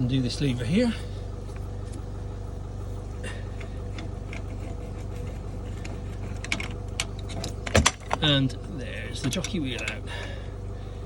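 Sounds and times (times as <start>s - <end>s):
vehicle engine idling: 0.0s - 11.0s
faint clicks and knocks: 3.6s - 8.3s.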